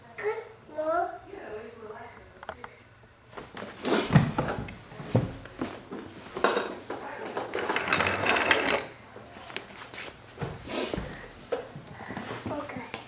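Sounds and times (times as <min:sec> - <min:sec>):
clothespins rattling in a can: 0:07.5 - 0:08.9.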